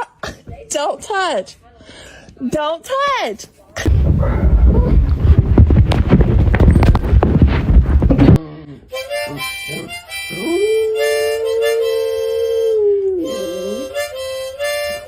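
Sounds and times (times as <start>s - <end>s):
loud rough crackling noise: 3.9s - 8.4s
dog howling and yelping: 9.7s - 13.9s.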